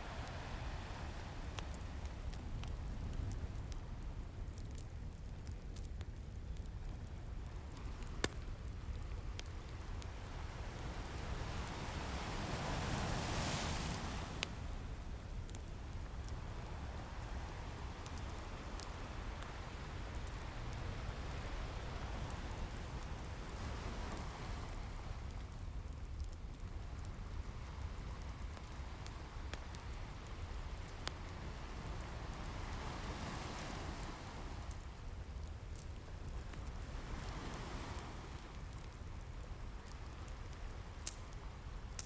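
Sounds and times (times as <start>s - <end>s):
ocean waves breaking on beach: 0.0s - 2.4s, 10.2s - 15.1s, 16.4s - 25.3s, 31.2s - 34.9s, 36.7s - 38.6s
fireplace crackling and popping: 0.0s - 42.0s.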